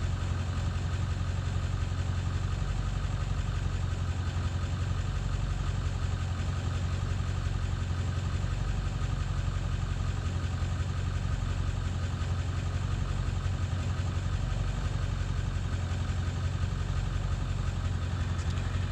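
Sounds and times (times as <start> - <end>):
diesel engine idling rough: 0.0 - 18.9.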